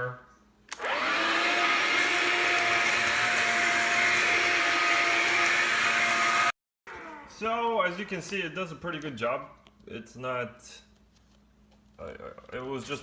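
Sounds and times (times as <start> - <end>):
vacuum cleaner motor whine: 0.7 - 8.3.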